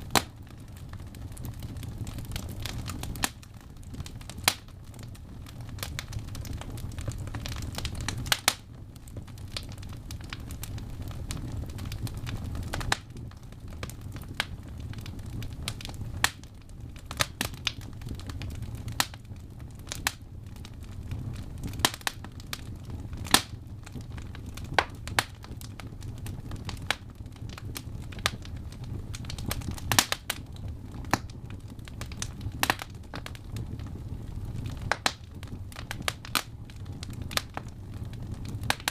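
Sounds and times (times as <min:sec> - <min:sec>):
burning logs crackling: 0:00.0 - 0:38.9
fire flames rumbling: 0:00.0 - 0:38.9.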